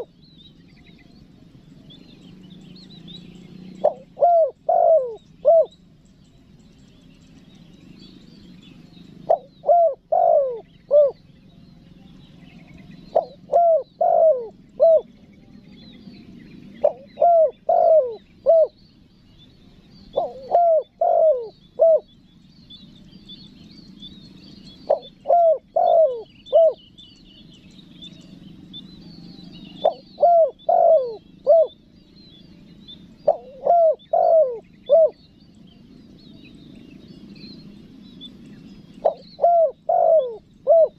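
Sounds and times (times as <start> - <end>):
dove cooing: 0.0 - 0.2, 1.0 - 5.8, 8.7 - 11.2, 12.9 - 15.3, 16.6 - 18.8, 20.0 - 22.1, 24.8 - 26.8, 29.1 - 31.9, 33.2 - 35.3, 38.9 - 40.9
small birds chirping faintly: 0.0 - 40.9.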